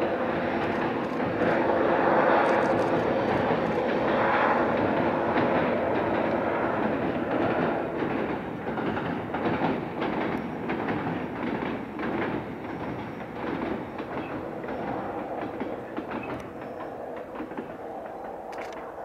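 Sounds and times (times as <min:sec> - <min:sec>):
train rumbling across bridge: 0:00.0 - 0:19.0.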